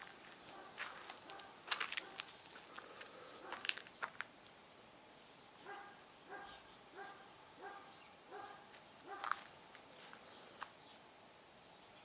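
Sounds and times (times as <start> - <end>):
dog barking: 0.5 - 2.3, 5.6 - 9.4.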